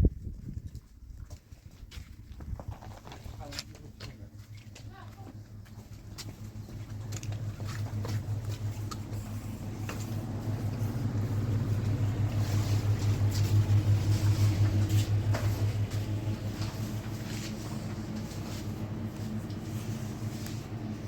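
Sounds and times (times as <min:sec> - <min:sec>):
engine humming: 0:03.9 - 0:21.0.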